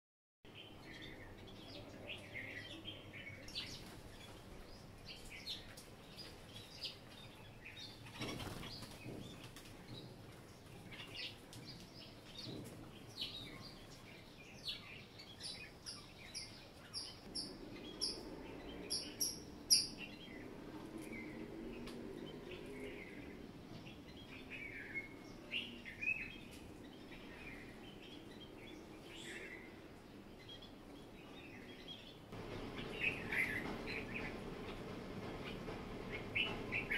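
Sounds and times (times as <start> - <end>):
small birds chirping: 0.5 - 36.9.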